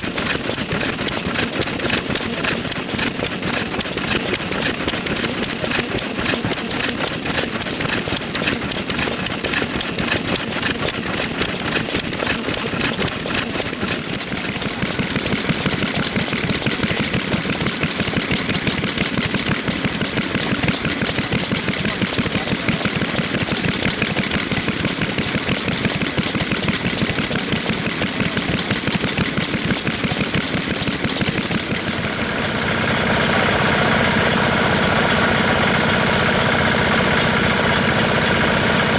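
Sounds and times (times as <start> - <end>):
old farm engines putting: 30.8 - 38.9.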